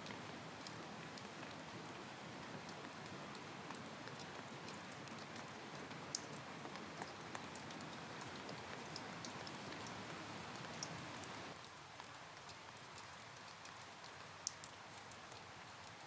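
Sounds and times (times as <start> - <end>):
steady rain hiss: 0.0 - 16.0
raindrops ticking: 2.6 - 11.8.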